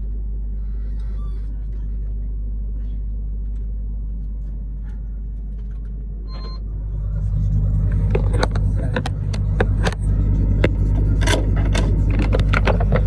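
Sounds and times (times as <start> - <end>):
truck engine drone: 0.0 - 13.0
short electronic beep: 6.3 - 6.7
road noise: 6.6 - 13.0.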